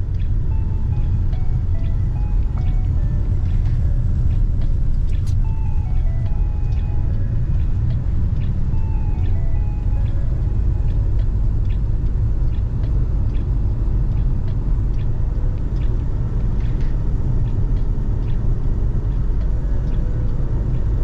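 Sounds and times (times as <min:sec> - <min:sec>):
car road and engine rumble: 0:00.0 - 0:21.0
faint ticks: 0:00.0 - 0:21.0.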